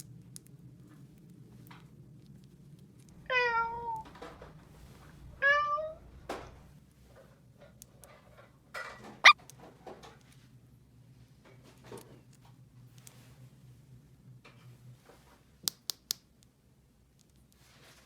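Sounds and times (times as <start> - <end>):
cat meowing: 3.2 - 4.0, 5.4 - 6.0.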